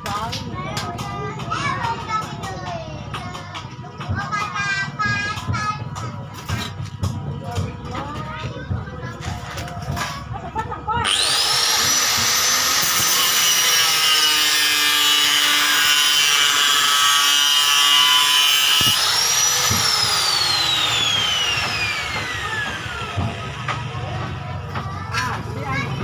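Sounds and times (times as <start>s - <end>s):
electric motor whining: 11.0s - 23.6s.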